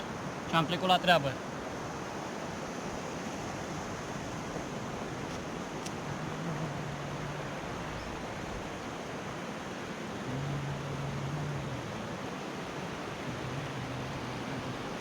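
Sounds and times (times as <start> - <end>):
low steady hum: 10.3 - 12.1.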